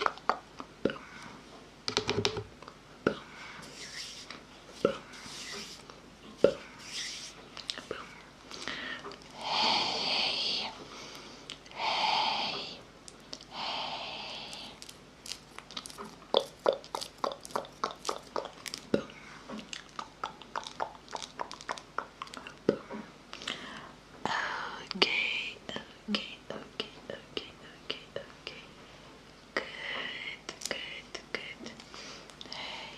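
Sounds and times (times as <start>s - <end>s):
breathy mouth hisses: 3.6s - 4.3s, 8.7s - 10.7s, 13.5s - 14.8s
crunchy mouth clicks: 14.5s - 23.0s.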